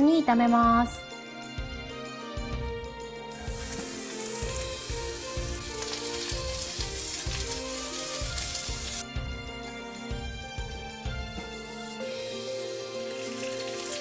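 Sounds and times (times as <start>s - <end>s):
background music with steady beat: 0.0s - 14.0s
onions sizzling in oil: 3.3s - 10.3s, 11.0s - 14.0s.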